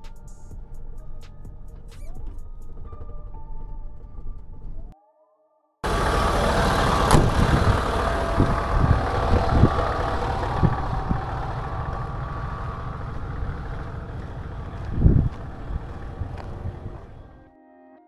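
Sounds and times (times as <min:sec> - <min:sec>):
heavy machine engine running: 0:05.8 - 0:17.4.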